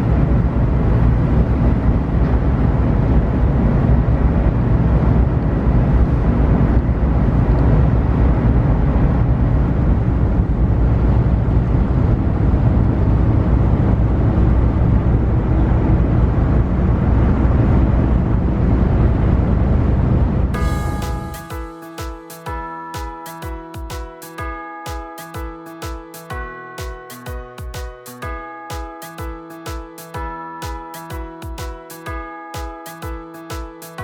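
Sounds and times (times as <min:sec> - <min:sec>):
ferry engine and hull rumble: 0:00.0 - 0:20.6.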